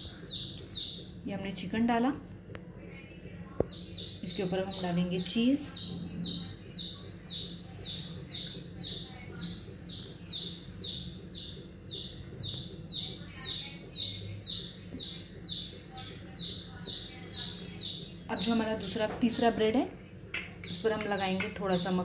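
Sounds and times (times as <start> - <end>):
bird high chirp: 3.7 - 19.0.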